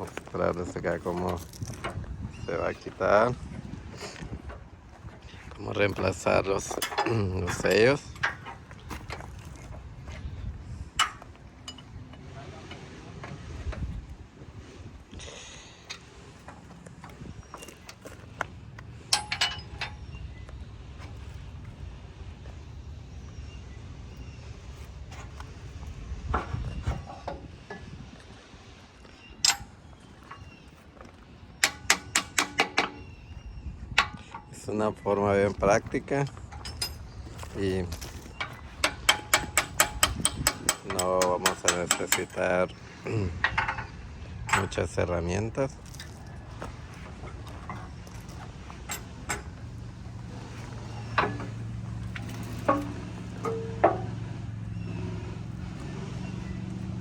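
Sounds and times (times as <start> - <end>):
steady low hum: 0.0 - 57.0
dull knocks of metal tools: 5.4 - 10.2, 11.0 - 13.8, 15.9 - 20.1, 29.4 - 30.5, 31.6 - 33.2, 35.9 - 45.1, 45.8 - 55.5
sharp ringing metallic taps: 19.1 - 20.0, 51.0 - 54.2.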